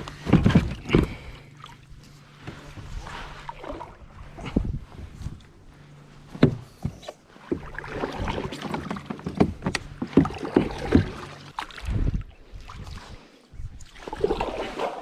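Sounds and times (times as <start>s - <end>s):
low steady hum: 0.0s - 15.0s
paddling water sounds: 0.0s - 15.0s
paddle knocking on kayak hull: 6.4s - 11.4s.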